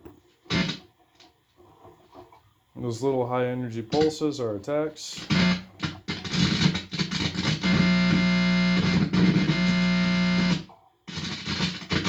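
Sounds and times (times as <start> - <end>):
guitar amplifier electrical buzz: 0.5 - 0.9, 5.1 - 12.0.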